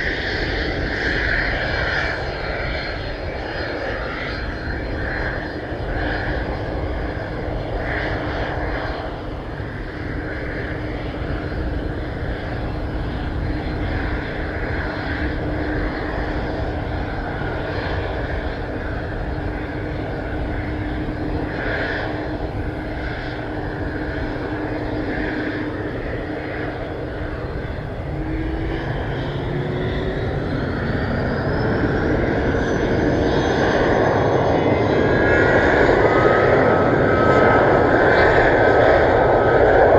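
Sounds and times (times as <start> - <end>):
airplane engines humming: 0.0 - 39.9
rising high whine: 19.2 - 39.9.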